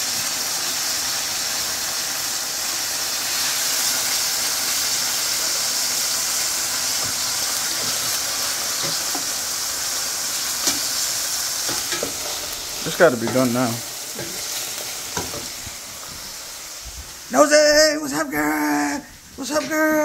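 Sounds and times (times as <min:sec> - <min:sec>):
chicken sizzling in hot oil: 0:00.0 - 0:17.3.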